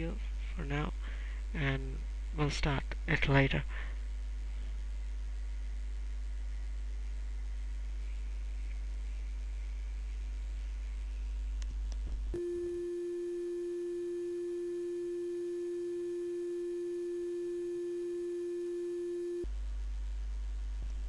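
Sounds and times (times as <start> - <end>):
low electrical hum: 0.0 - 21.0
electronic tone: 12.4 - 19.5.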